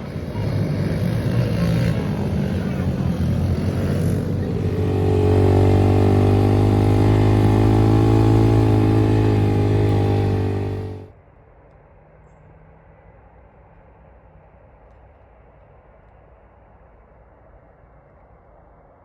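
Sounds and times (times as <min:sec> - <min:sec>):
engine running: 0:00.0 - 0:11.1.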